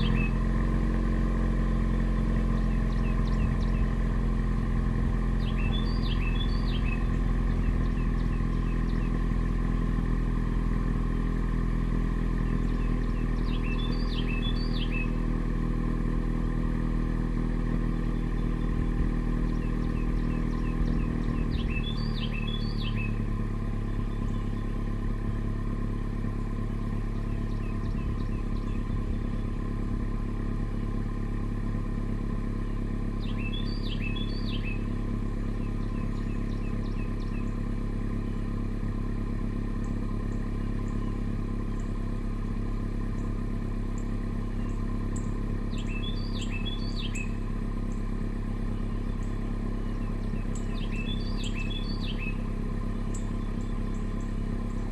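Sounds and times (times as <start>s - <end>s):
bird chirping: 0.0s - 0.5s, 1.8s - 4.4s, 5.1s - 9.5s, 12.2s - 15.4s, 17.8s - 25.0s, 26.8s - 29.8s, 32.6s - 38.5s, 43.2s - 54.9s
car engine idling: 0.0s - 54.9s.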